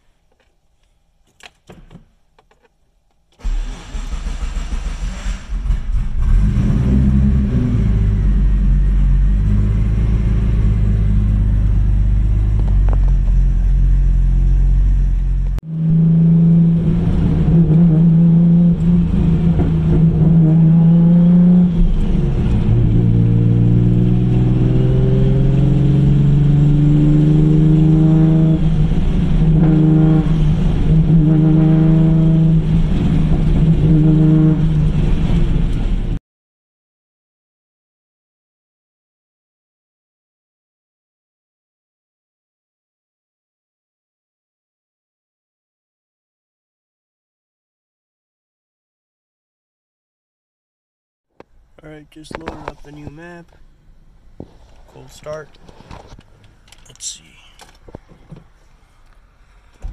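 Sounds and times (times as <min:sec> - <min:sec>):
car engine cranking and running: 0:03.3 - 0:15.6.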